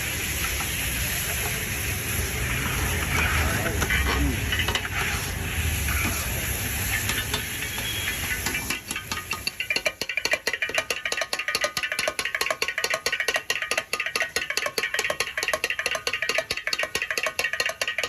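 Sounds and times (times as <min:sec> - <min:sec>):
rhythmic ringing percussive clatter: 0:06.7 - 0:18.0.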